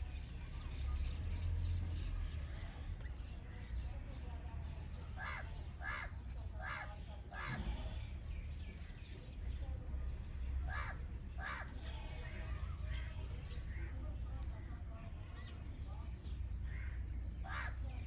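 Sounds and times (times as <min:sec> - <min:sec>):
small birds chirping: 0:00.0 - 0:18.0
crows cawing: 0:05.2 - 0:07.7, 0:10.7 - 0:11.8, 0:16.7 - 0:17.8.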